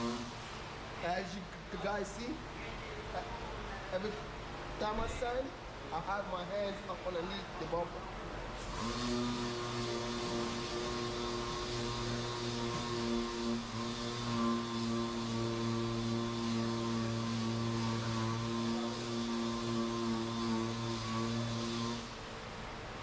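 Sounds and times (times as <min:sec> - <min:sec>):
sander motor hum: 0:00.0 - 0:00.4, 0:08.6 - 0:22.2
sanding pad hiss: 0:00.0 - 0:00.4, 0:08.6 - 0:22.2.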